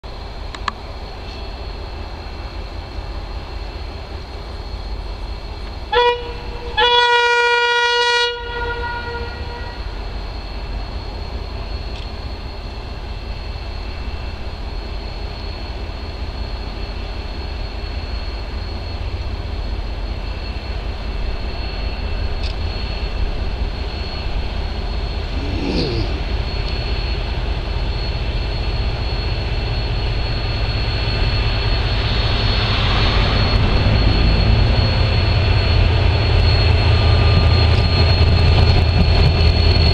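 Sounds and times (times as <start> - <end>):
locomotive horn: 5.9 - 10.0
diesel engine working: 31.9 - 39.4.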